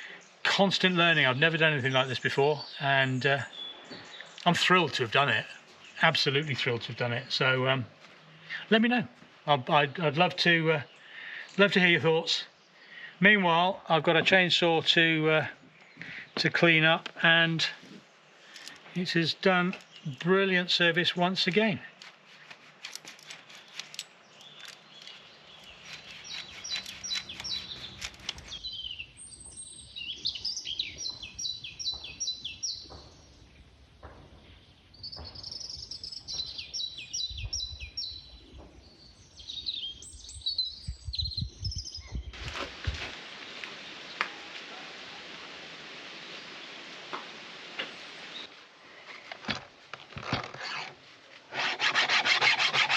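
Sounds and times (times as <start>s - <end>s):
songbirds singing: 0.0s - 42.5s, 47.8s - 49.3s
steady hiss: 42.4s - 49.0s.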